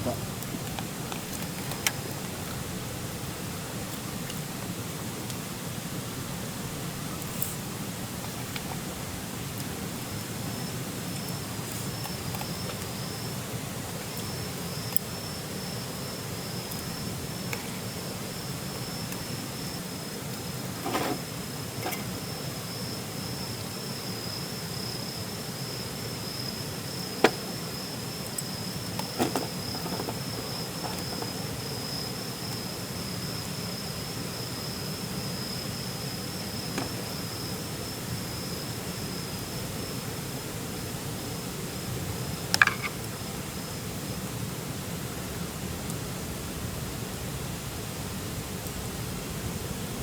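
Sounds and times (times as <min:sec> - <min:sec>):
insect trilling: 0:07.3 - 0:40.0.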